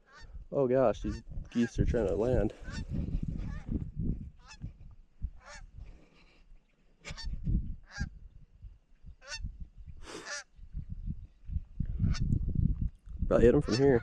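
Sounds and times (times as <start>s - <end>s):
geese honking overhead: 0.0s - 0.4s, 1.0s - 3.7s, 4.4s - 4.7s, 5.4s - 5.8s, 7.0s - 8.2s, 9.2s - 9.5s, 10.2s - 10.5s, 13.6s - 14.0s.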